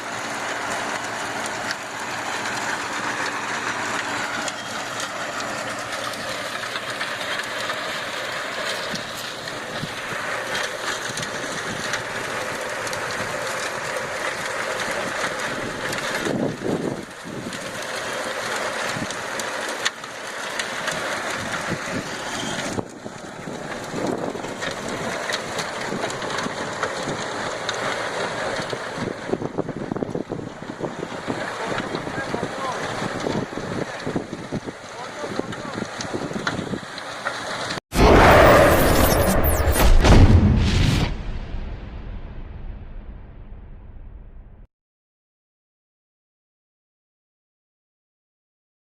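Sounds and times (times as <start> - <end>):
rotavator churning soil: 0.0 - 30.3
tractor diesel engine under load: 0.0 - 39.0.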